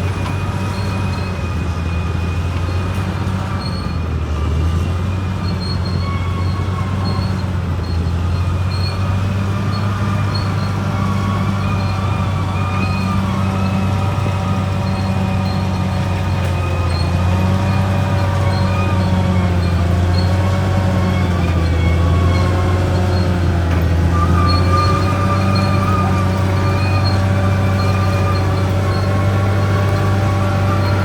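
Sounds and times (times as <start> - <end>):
bulldozer diesel engine drone: 0.0 - 31.0
high squeal: 0.0 - 31.0
whining tones: 0.0 - 31.0.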